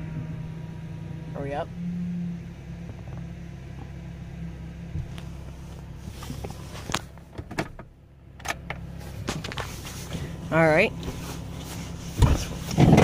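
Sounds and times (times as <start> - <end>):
truck engine running: 0.0 - 13.0
sharp clicks and clunks: 12.2 - 13.0.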